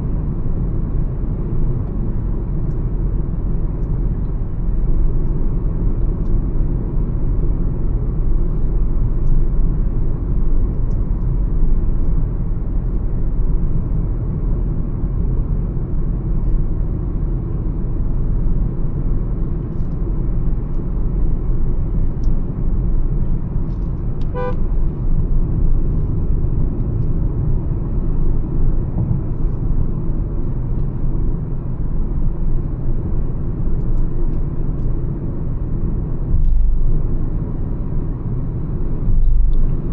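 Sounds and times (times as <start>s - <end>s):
engine drone: 0.0s - 39.9s
road and tyre noise: 0.0s - 39.9s
car horn toot: 24.2s - 24.7s.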